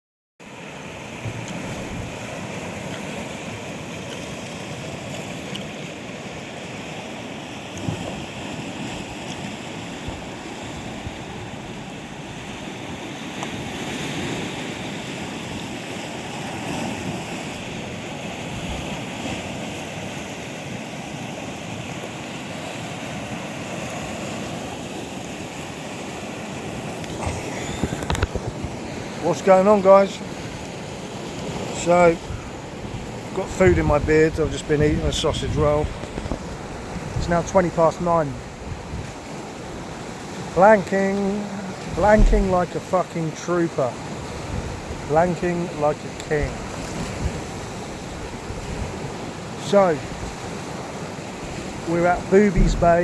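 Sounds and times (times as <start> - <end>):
sea surf washing onto shore: 0.4 - 53.0
wind on microphone: 7.8 - 13.0, 16.6 - 20.1, 26.8 - 29.2, 30.2 - 40.7, 41.4 - 42.8, 44.0 - 45.2, 46.1 - 53.0.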